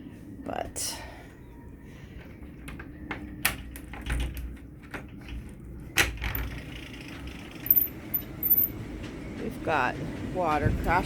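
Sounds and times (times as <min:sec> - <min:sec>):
wind rumble on microphone: 0:10.4 - 0:11.0.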